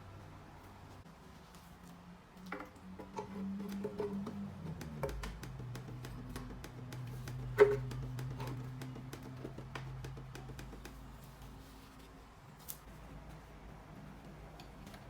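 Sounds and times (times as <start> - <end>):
low steady hum: 0.0 - 15.0
light clicks and taps: 2.4 - 11.6.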